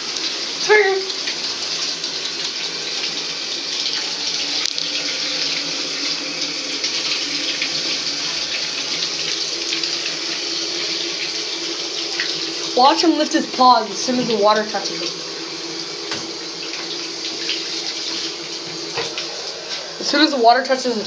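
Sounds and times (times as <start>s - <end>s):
tap water running into bathtub: 0.0s - 21.0s.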